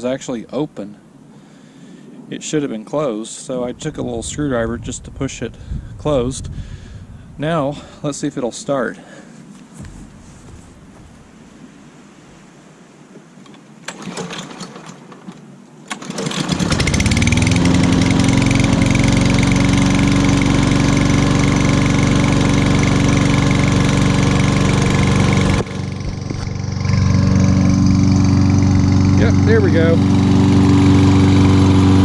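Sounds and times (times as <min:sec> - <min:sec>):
starter cord pulls: 0:13.4 - 0:19.0
lawn mower engine running: 0:13.8 - 0:32.0.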